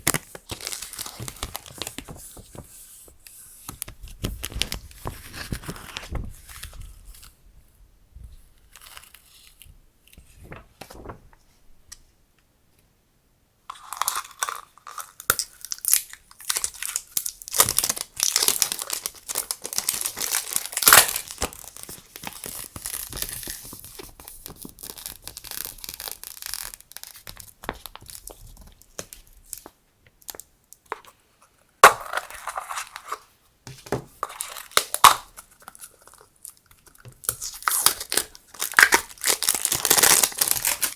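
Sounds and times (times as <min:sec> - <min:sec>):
packaging crinkling and tearing: 0:00.0 - 0:02.7, 0:13.8 - 0:29.7, 0:34.2 - 0:40.9.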